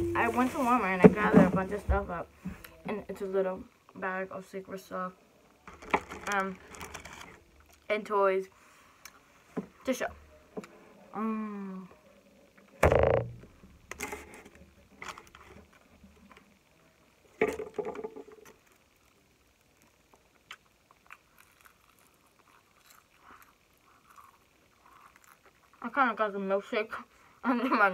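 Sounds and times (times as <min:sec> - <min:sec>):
loud bumps against microphone: 0:12.8 - 0:13.5
eating sounds: 0:19.0 - 0:25.8.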